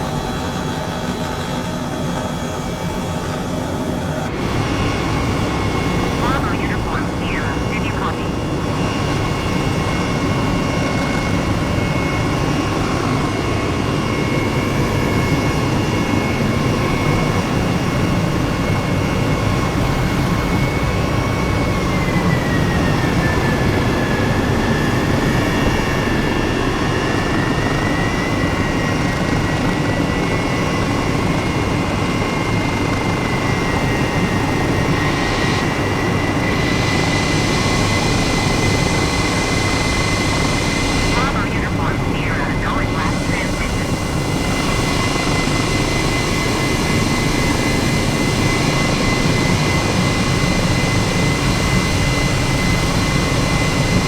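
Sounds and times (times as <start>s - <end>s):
jet engine running: 0.0s - 54.0s.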